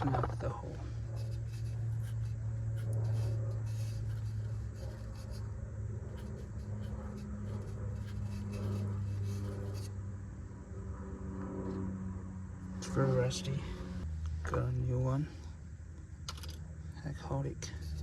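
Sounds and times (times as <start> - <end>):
scratchy scrubbing strokes: 0.0 - 10.0
steady low hum: 0.0 - 18.0.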